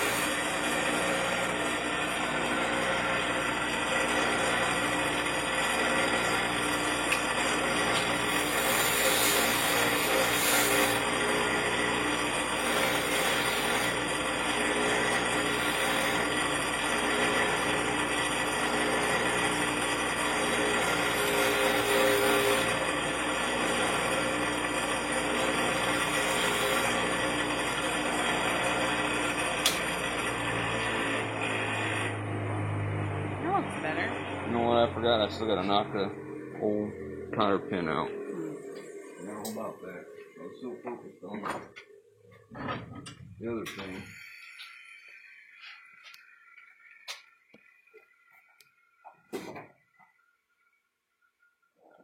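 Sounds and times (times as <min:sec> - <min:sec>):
wire wheel grinding metal: 0:00.0 - 0:32.2.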